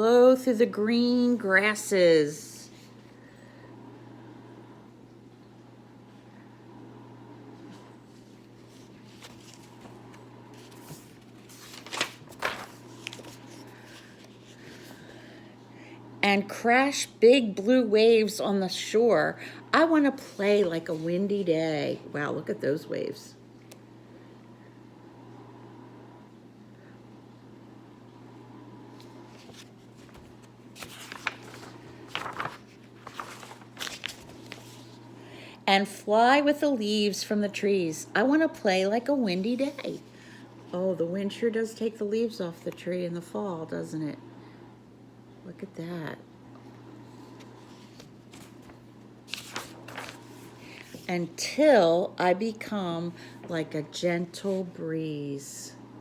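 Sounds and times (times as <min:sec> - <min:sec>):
faint low hum: 0:00.0 - 0:56.0
book pages turning: 0:08.1 - 0:15.1, 0:29.0 - 0:35.0, 0:47.0 - 0:51.2.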